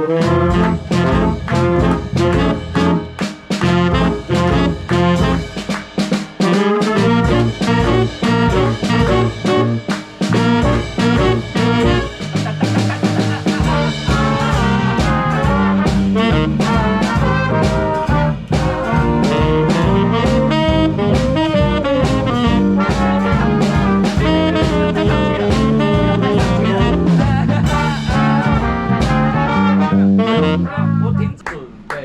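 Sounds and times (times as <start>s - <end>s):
swing band playing: 0.0s - 31.9s.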